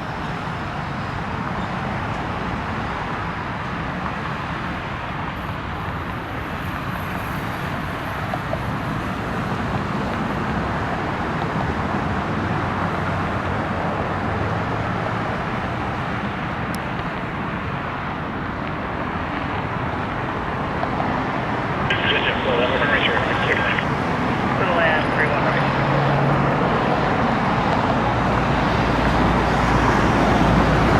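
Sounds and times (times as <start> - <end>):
distant engine roar: 21.4 - 30.9.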